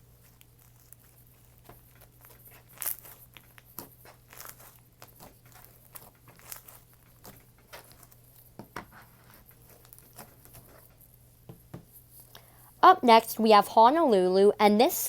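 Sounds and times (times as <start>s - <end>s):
slime crackling and popping: 0.1s - 8.5s.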